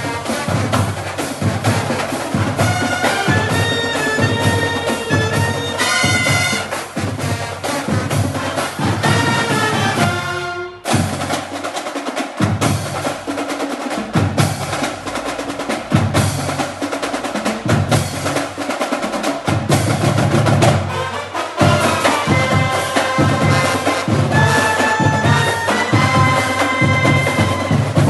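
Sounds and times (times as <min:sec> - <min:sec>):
held wind instrument notes: 0:00.0 - 0:11.2, 0:20.6 - 0:28.0
snare drum rolls: 0:00.0 - 0:28.0.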